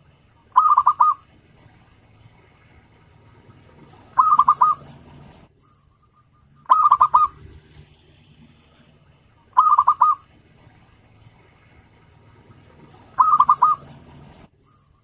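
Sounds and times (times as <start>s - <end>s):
dove cooing: 0.5s - 1.8s, 3.0s - 5.5s, 6.6s - 7.4s, 9.5s - 10.4s, 12.3s - 14.5s.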